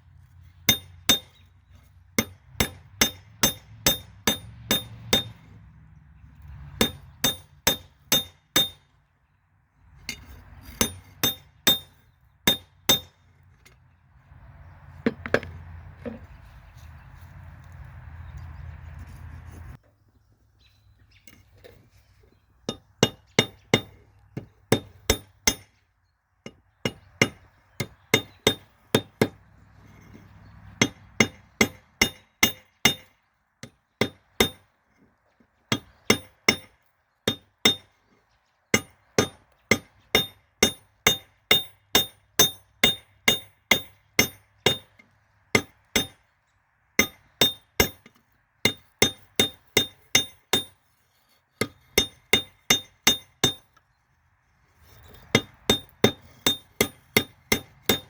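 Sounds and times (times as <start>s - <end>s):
hammer striking metal on anvil: 0.7s - 1.3s, 2.2s - 5.4s, 6.8s - 8.8s, 10.8s - 13.2s, 35.7s - 36.7s, 37.3s - 37.9s, 38.8s - 44.9s, 45.6s - 46.2s, 47.0s - 48.1s, 48.7s - 50.8s, 51.6s - 53.7s, 55.3s - 58.0s.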